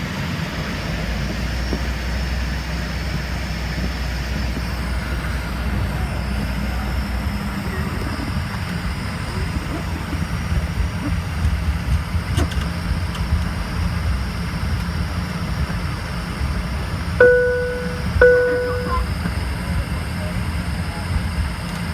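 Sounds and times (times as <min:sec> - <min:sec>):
jet cabin engine roar: 0:00.1 - 0:21.9
cabin chime: 0:17.2 - 0:19.1.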